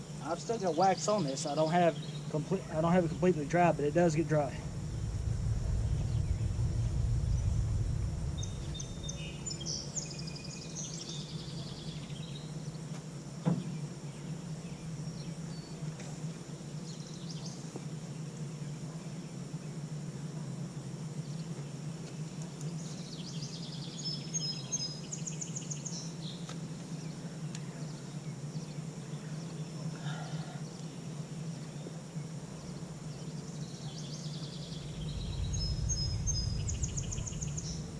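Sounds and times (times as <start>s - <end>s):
small birds chirping: 0.0s - 12.6s, 32.6s - 37.9s
steady low hum: 0.0s - 13.4s, 28.8s - 37.9s.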